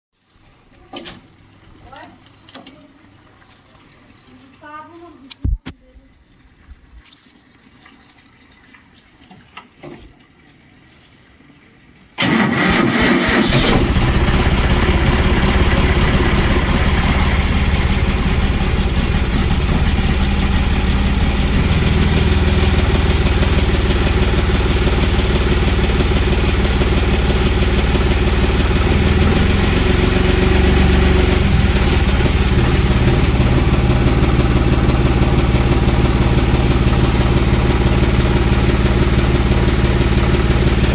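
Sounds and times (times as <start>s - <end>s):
tractor diesel engine starting: 12.2s - 40.9s.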